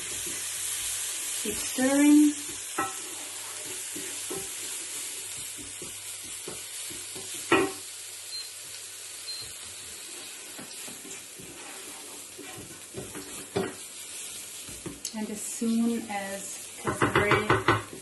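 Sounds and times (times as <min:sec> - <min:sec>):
spices sizzling in hot fat: 0:00.0 - 0:18.0
spoon knocking on pan: 0:02.5 - 0:03.0, 0:04.0 - 0:04.5, 0:05.4 - 0:07.8, 0:16.8 - 0:18.0
spoon scraping a pan: 0:02.7 - 0:05.4, 0:10.2 - 0:13.9.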